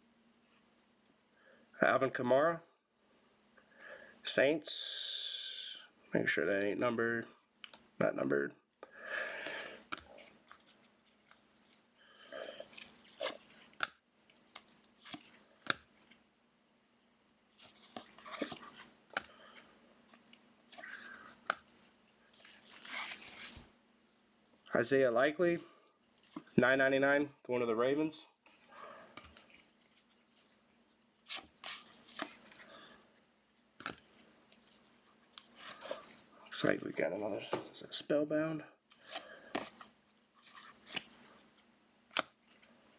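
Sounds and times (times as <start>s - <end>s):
trading cards swishing and snapping: 12.6s - 16.2s
cards clicking and tapping: 17.9s - 19.3s.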